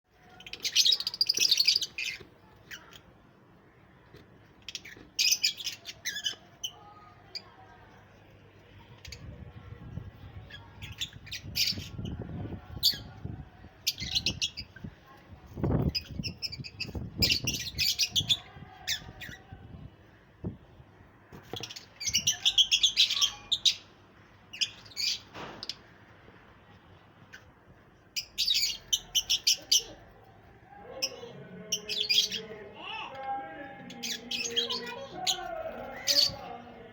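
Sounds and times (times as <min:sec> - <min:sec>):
parrots chirping and squawking: 0:00.4 - 0:03.1, 0:04.6 - 0:06.8, 0:10.8 - 0:12.1, 0:15.9 - 0:19.4, 0:21.6 - 0:23.9, 0:24.5 - 0:25.8, 0:28.2 - 0:30.1, 0:31.0 - 0:32.6, 0:33.9 - 0:36.6.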